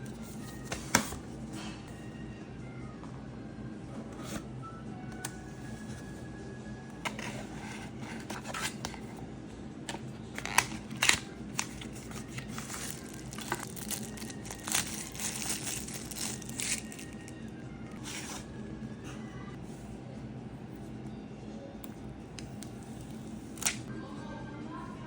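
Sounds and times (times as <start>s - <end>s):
packaging crinkling and tearing: 10.4s - 17.3s.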